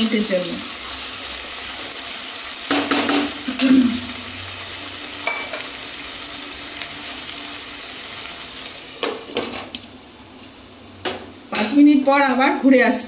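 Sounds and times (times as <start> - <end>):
food sizzling in a pan: 0.0 - 12.0
wooden spatula knocking on pan: 2.7 - 3.4.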